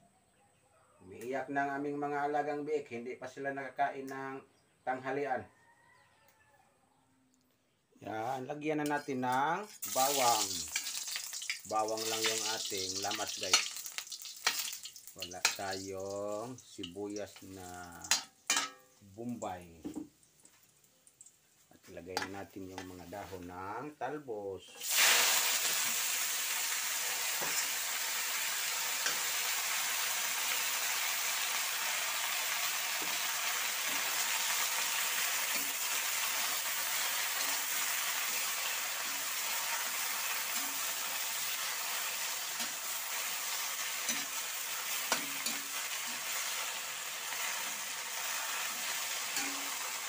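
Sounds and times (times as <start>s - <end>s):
leaves sizzling in hot oil: 8.8s - 23.5s, 24.8s - 50.0s
metal spatula clinking on wok: 18.0s - 18.9s.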